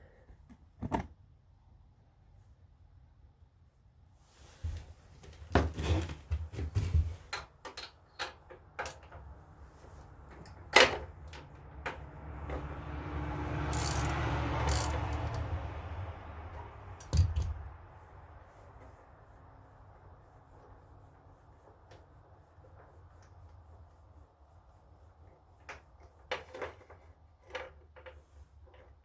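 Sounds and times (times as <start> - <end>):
metal hand tools clinking: 13.7 - 15.4.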